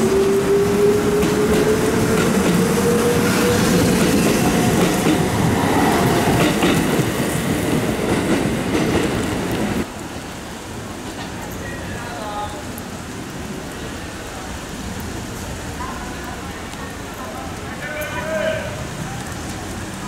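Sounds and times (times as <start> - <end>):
steady rain: 0.0 - 20.0
train wheels clattering: 1.1 - 9.8.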